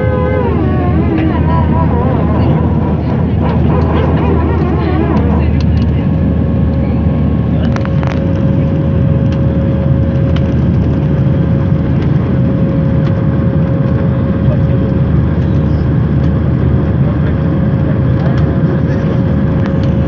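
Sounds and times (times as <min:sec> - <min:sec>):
jet engines running: 0:00.0 - 0:20.0
steady engine whine: 0:00.0 - 0:20.0.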